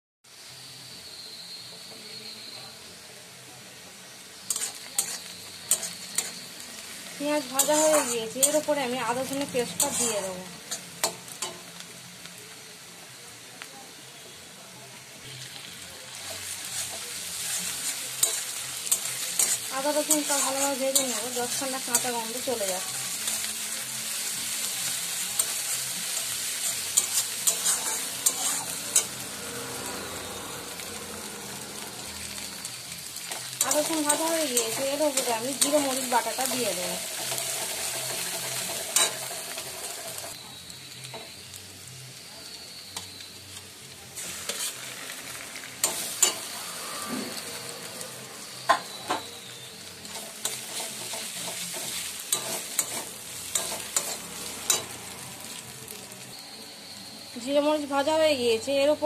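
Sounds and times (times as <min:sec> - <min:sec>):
onions sizzling in oil: 0:00.2 - 0:59.0
metal spatula scraping pan: 0:04.5 - 0:06.5, 0:07.4 - 0:11.6, 0:16.2 - 0:22.8, 0:25.4 - 0:30.0, 0:44.2 - 0:45.0, 0:45.8 - 0:47.5, 0:50.1 - 0:55.0.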